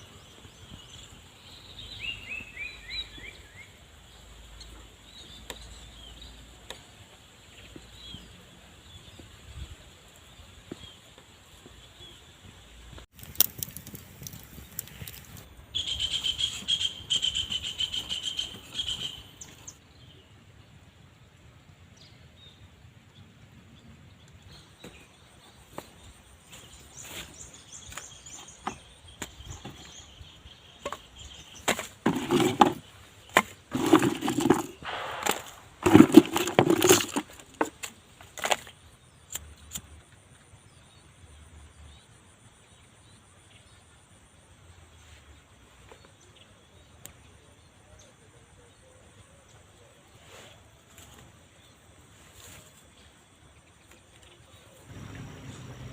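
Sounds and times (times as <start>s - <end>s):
bird trilling call: 15.8s - 19.4s
rustling and knocking bursts: 30.8s - 38.7s.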